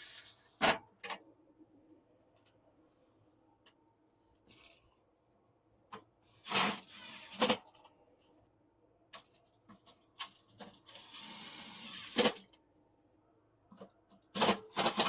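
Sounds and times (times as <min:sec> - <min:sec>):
power drill driving screws: 0:10.9 - 0:12.3.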